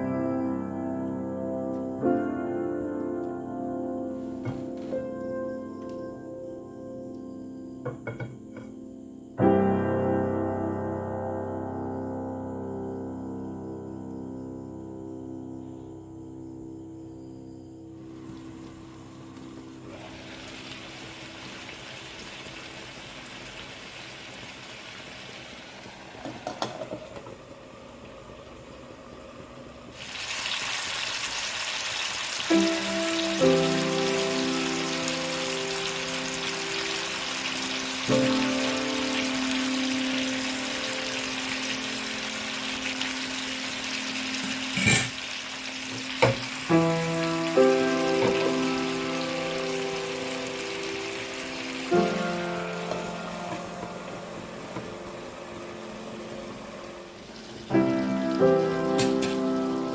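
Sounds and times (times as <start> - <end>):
quiet background music: 0.0 - 22.0, 32.5 - 59.9
curry sizzling and bubbling: 18.0 - 59.9
cooking utensil clinks: 44.4 - 45.2.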